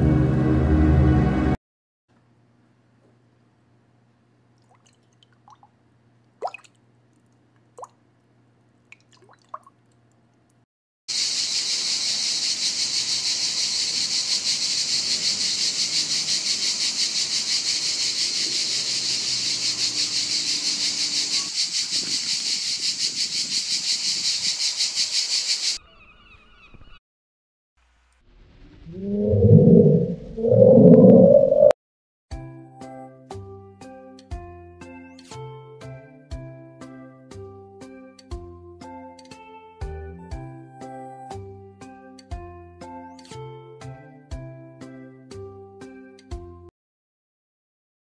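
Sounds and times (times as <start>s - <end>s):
marsupial buzzing hiss: 11.1s - 25.8s
faint hum: 28.8s - 31.7s.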